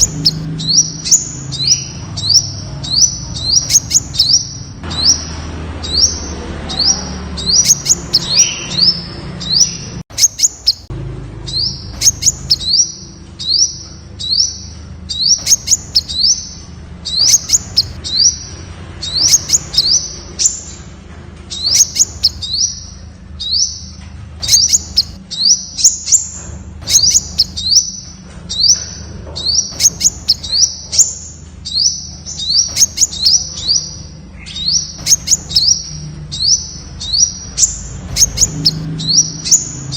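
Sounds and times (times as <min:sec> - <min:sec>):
bird high upward chips: 0:07.4 - 0:10.9, 0:11.5 - 0:18.4, 0:26.8 - 0:28.0, 0:34.6 - 0:39.9.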